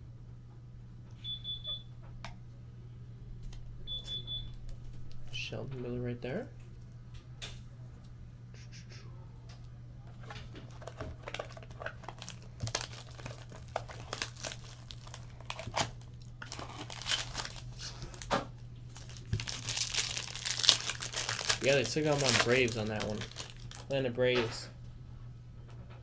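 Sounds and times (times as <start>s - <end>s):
wrapper crinkling and tearing: 10.1s - 24.0s.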